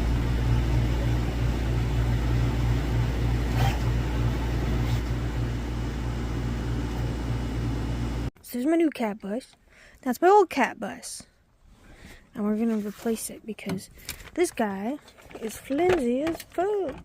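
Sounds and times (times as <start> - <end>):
low mechanical hum: 0.0 - 8.3.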